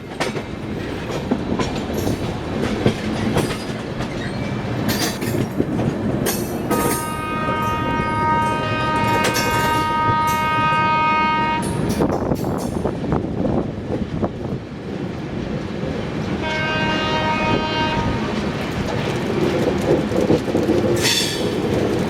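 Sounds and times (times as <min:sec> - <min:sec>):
moving train rumble and clatter: 0:00.0 - 0:22.0
train horn blasts: 0:06.7 - 0:12.0, 0:16.4 - 0:18.4.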